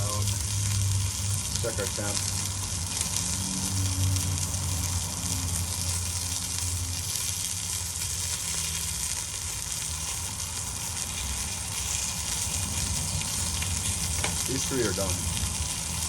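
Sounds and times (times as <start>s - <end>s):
chicken frying in oil: 0.0s - 16.0s.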